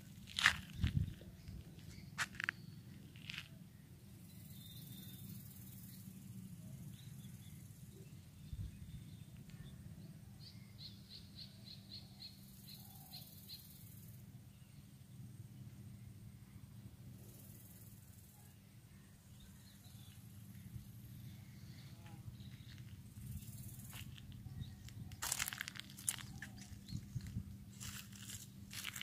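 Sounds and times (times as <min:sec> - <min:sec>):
steady low rumble: 0:00.0 - 0:04.0, 0:19.1 - 0:29.0
light crunches: 0:24.8 - 0:29.0.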